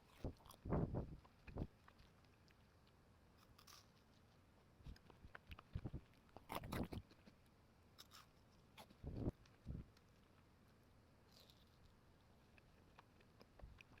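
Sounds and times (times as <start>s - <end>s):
chewing cookie: 0.0s - 14.0s.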